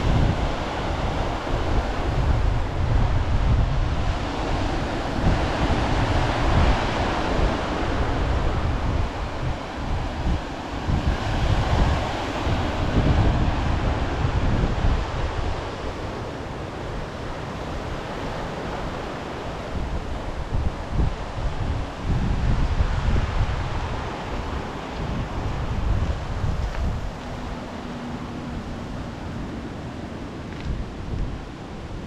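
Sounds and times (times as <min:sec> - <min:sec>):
sea surf breaking: 0:00.0 - 0:32.0
wind buffeting microphone: 0:00.0 - 0:32.0.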